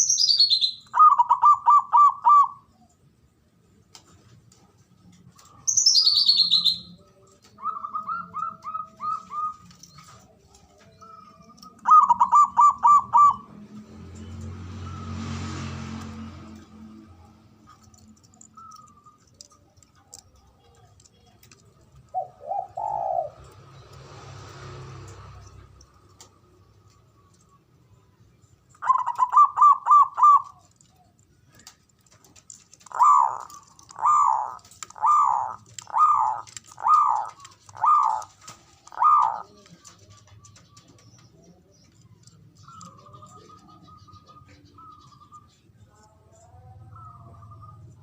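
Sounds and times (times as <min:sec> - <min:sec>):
dove cooing: 0:00.9 - 0:02.7, 0:07.5 - 0:09.8, 0:10.7 - 0:13.6, 0:17.8 - 0:23.6, 0:28.8 - 0:31.1, 0:32.4 - 0:41.0.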